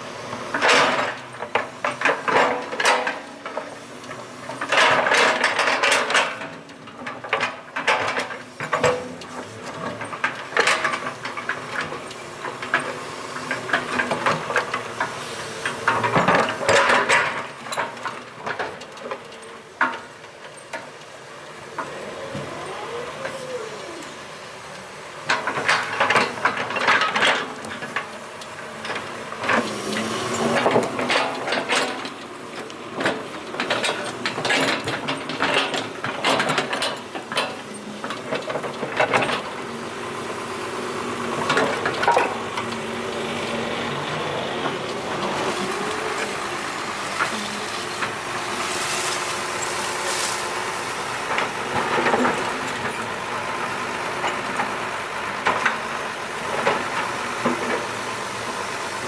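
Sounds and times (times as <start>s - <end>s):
excavator engine running: 0.0s - 59.0s
metal clanks and knocks: 0.5s - 3.7s, 4.5s - 20.9s, 25.2s - 28.1s, 28.8s - 39.5s.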